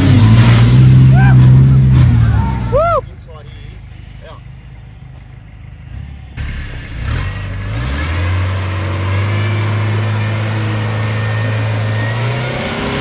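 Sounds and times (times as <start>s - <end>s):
truck engine revving and droning: 0.0s - 13.0s.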